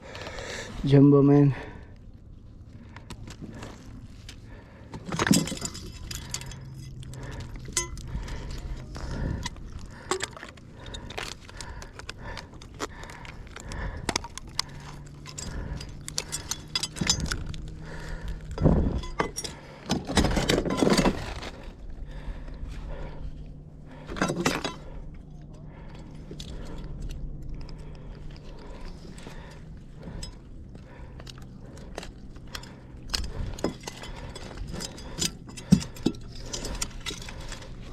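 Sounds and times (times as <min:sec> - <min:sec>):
metal clinking and rattling: 0:05.0 - 0:11.6, 0:13.5 - 0:21.5, 0:24.0 - 0:24.9, 0:28.4 - 0:37.9.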